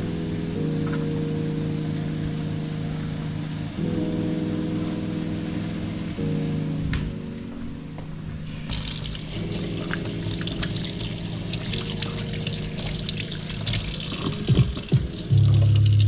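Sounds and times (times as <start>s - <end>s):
background music: 0.0s - 16.0s
tap water running into sink: 8.5s - 16.0s.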